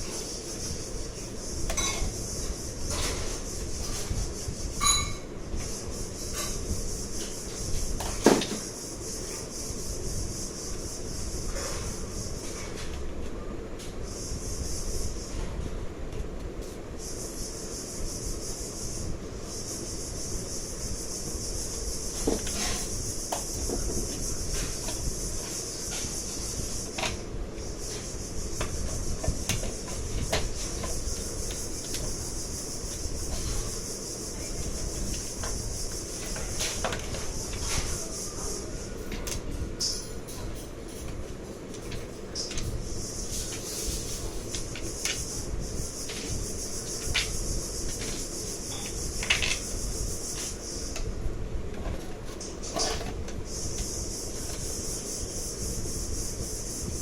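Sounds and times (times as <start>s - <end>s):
steady hiss: 0.0s - 57.0s
ringing metallic clink: 4.8s - 5.2s
objects rubbed on work surface: 22.0s - 23.3s, 27.7s - 38.2s, 43.0s - 50.9s.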